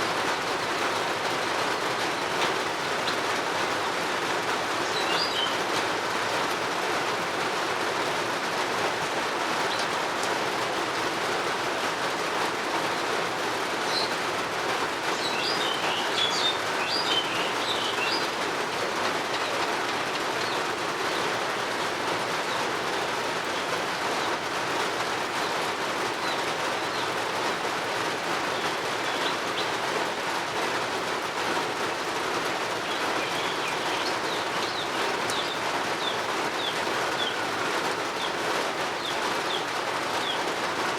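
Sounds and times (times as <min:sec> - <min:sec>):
steady rain falling: 0:00.0 - 0:40.9
small birds chirping: 0:04.8 - 0:05.7, 0:13.8 - 0:14.2, 0:15.0 - 0:18.4, 0:25.4 - 0:27.6, 0:28.4 - 0:29.9, 0:32.7 - 0:40.6.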